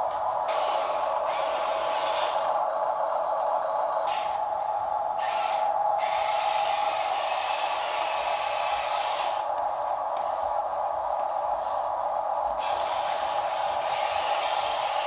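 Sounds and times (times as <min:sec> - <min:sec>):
toy electric motor whine: 0:00.4 - 0:02.6, 0:05.1 - 0:09.6, 0:12.6 - 0:15.0.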